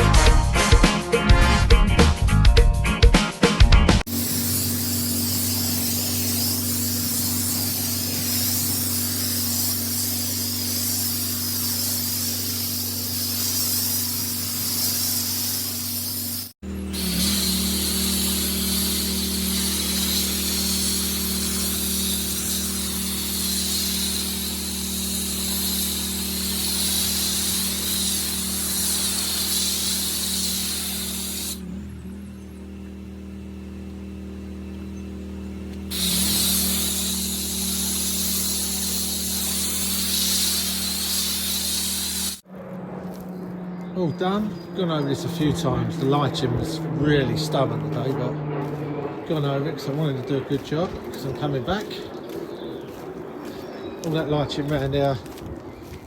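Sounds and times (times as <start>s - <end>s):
pressure washer motor hum: 4.0s - 42.5s, 43.6s - 51.9s
pressure washer spray hissing: 4.0s - 42.5s.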